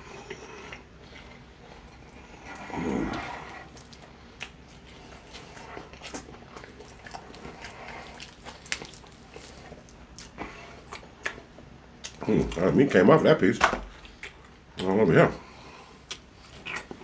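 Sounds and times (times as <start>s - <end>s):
biting crispy fried chicken: 3.0s - 11.4s.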